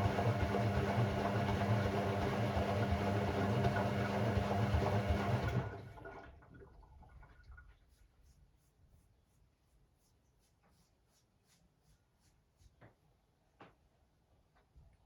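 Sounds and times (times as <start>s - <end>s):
water rushing in washing machine: 0.0s - 7.7s.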